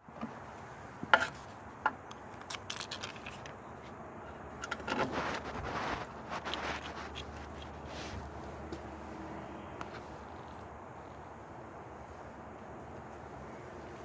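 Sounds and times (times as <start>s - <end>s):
metal tools clinking and scraping: 2.3s - 5.6s.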